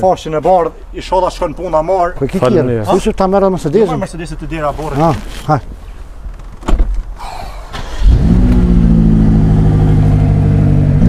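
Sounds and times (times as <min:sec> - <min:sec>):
short thump: 0:06.5 - 0:07.1
car engine starting: 0:07.2 - 0:11.0.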